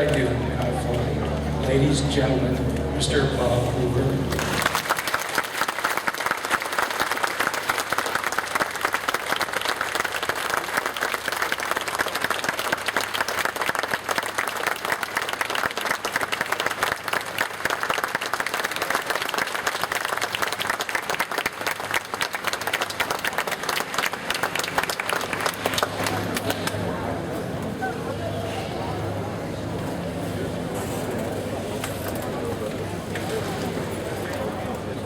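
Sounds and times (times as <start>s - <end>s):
crowd applauding: 4.3s - 28.0s.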